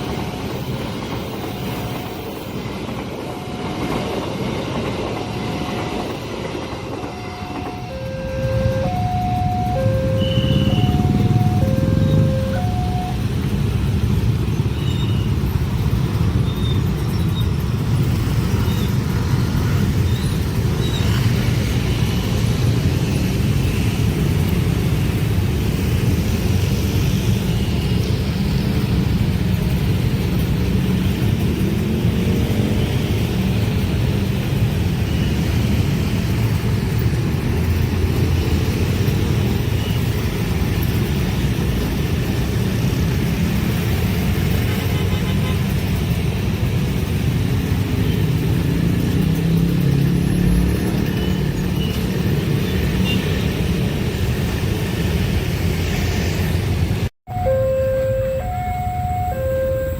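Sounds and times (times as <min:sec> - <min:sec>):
train rolling past: 0:00.0 - 0:59.9.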